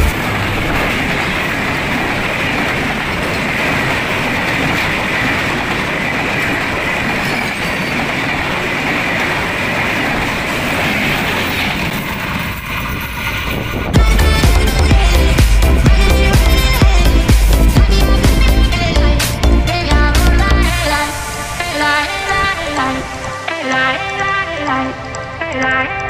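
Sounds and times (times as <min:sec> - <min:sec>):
train wheels clattering on rails: 0:00.0 - 0:26.0
high squealing hiss: 0:20.7 - 0:23.3.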